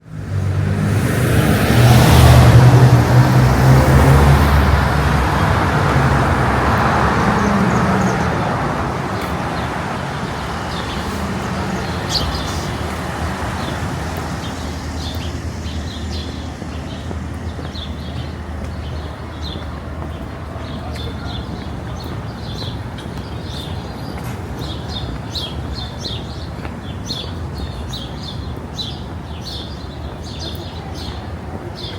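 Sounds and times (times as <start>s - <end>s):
city street traffic: 0.0s - 31.9s
vehicle engine passing by: 0.1s - 21.5s.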